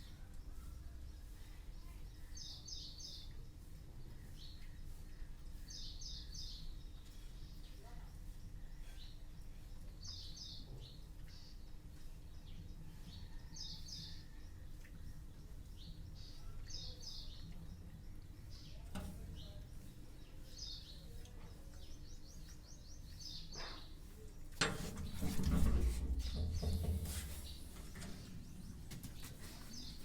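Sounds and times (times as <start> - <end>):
low background hum: 0.0 - 30.0
rustling rumbling noise: 24.5 - 30.0.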